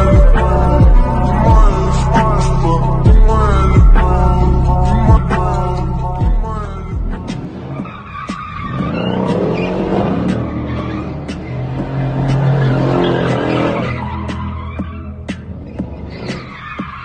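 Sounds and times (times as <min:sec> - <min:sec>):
car engine revving: 0:00.0 - 0:17.0
tyres skidding on road: 0:07.2 - 0:17.0.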